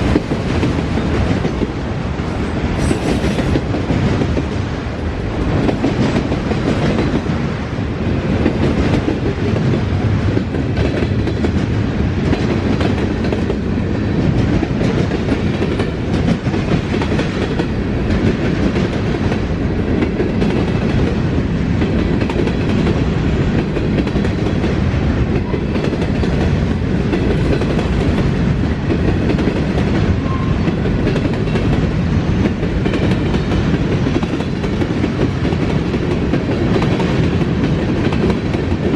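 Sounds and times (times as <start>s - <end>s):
freight train rumble: 0.0s - 38.9s.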